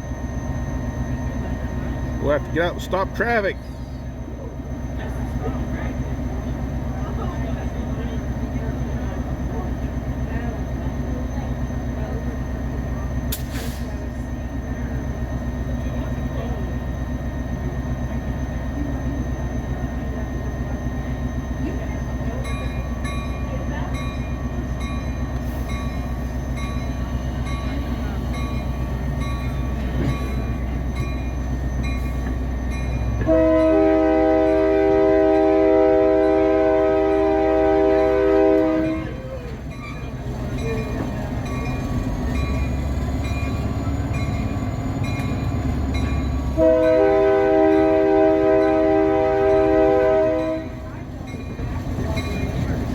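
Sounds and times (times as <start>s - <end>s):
diesel locomotive engine rumble: 0.0s - 52.9s
locomotive air horn chord: 33.2s - 39.2s, 46.5s - 50.9s.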